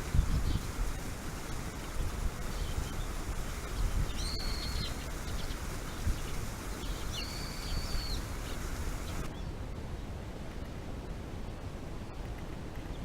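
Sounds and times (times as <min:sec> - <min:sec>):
bird whistled calls: 0:04.1 - 0:05.6, 0:06.2 - 0:09.5.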